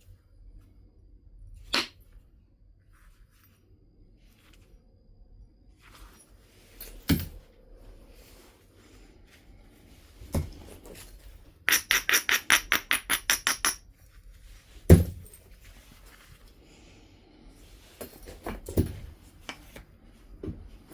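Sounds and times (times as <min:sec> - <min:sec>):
flint struck with percussion tool: 0:11.7 - 0:13.8.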